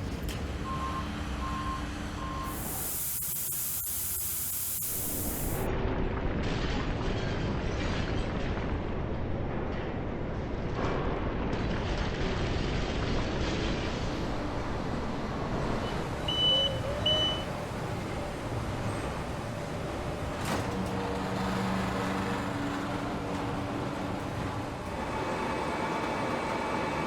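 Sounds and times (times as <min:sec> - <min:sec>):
machinery rumble: 0:08.3 - 0:27.0
short high beeps: 0:16.3 - 0:17.5.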